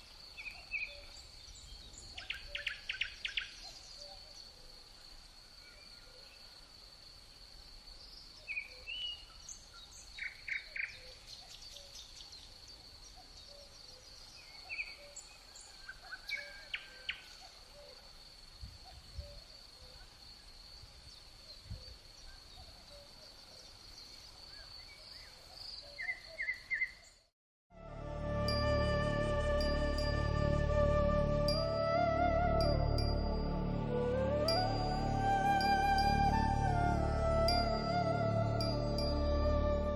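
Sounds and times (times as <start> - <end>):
music: 27.7 - 39.9.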